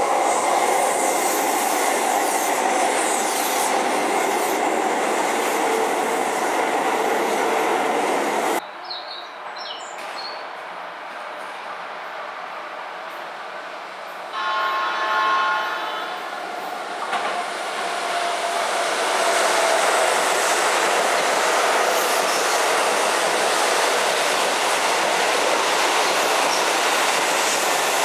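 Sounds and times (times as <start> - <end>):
train horn: 14.3 - 16.3
train wheels rumbling and clattering: 16.4 - 28.0.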